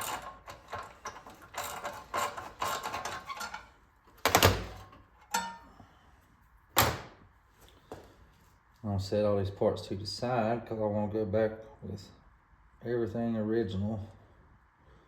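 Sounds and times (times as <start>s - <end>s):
metal parts and tools clinking: 0.0s - 3.7s, 4.3s - 5.7s.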